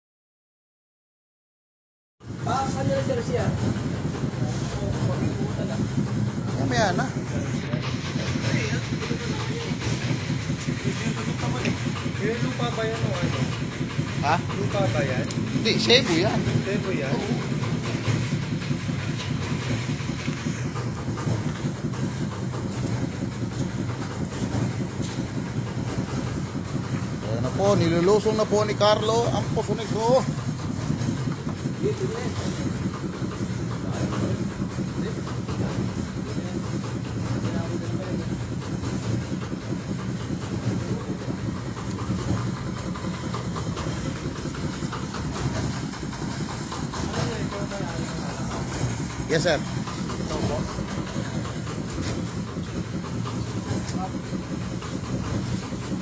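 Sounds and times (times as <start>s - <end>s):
truck engine and vacuum pump chugging: 2.2s - 56.0s.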